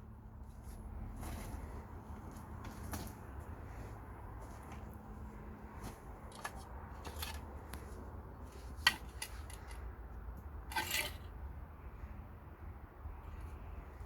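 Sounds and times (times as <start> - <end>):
scraping rustle: 0.4 - 9.8, 10.7 - 11.3
handling clicks and knocks: 5.8 - 7.9.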